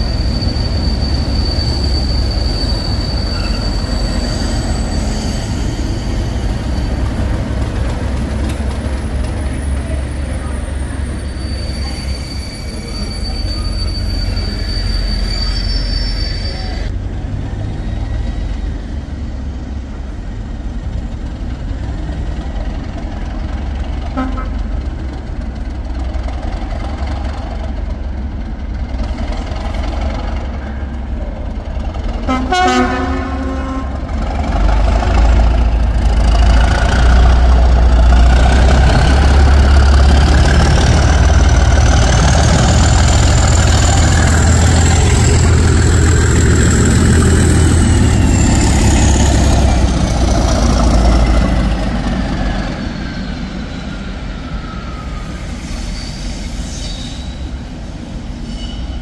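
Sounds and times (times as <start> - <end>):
train rumbling past: 0.0 - 59.0
train horn blast: 24.1 - 24.6, 32.3 - 34.1.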